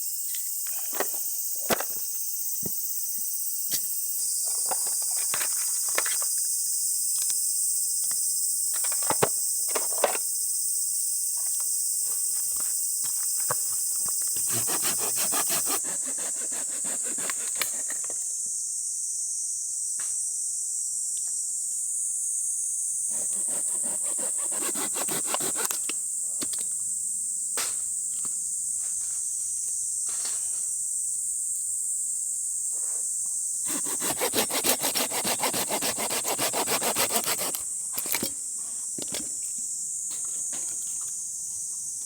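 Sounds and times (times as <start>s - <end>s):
high insect chorus: 0.0s - 42.0s
rapid scraping strokes: 14.4s - 17.8s, 23.1s - 25.7s, 33.7s - 37.6s.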